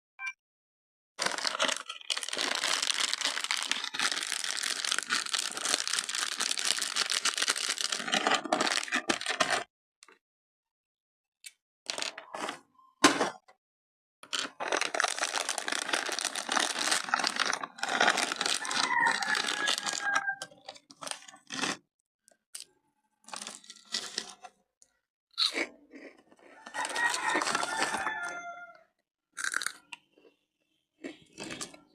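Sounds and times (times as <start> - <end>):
chip bag crackling: 1.2 - 9.6, 14.3 - 20.2, 26.8 - 28.2.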